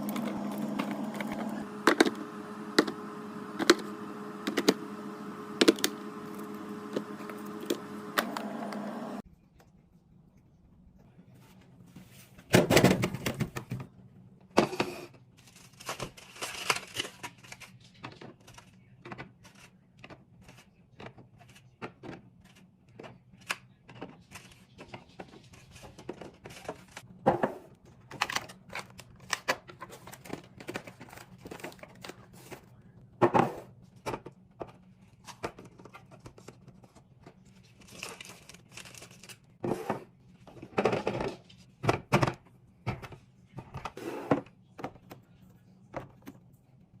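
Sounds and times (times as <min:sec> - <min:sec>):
items knocking when set down: 0:00.0 - 0:09.1, 0:27.2 - 0:27.7
plastic packaging crinkling: 0:37.6 - 0:39.6.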